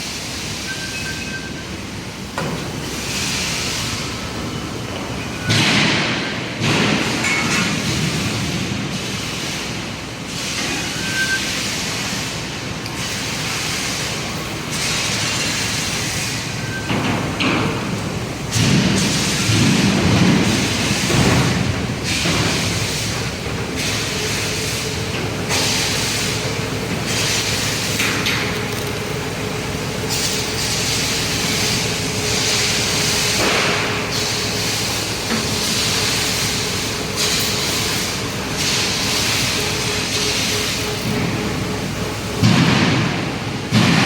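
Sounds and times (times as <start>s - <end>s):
hissing rumble of factory: 0.0s - 44.0s.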